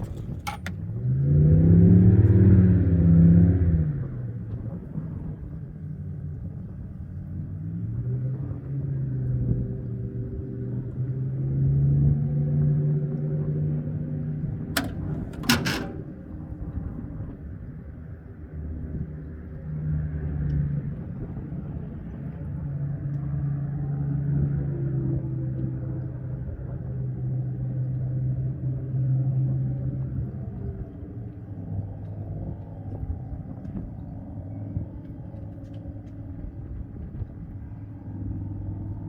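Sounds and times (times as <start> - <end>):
boat motor humming: 14.2 - 17.3.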